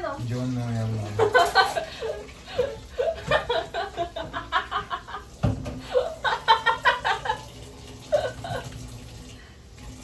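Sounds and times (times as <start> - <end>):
people laughing: 1.2 - 7.5.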